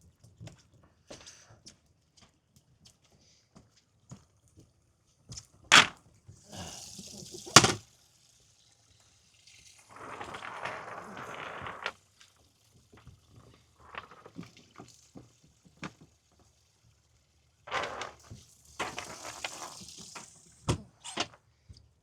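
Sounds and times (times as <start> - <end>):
water splashing and trickling: 6.4 - 21.0.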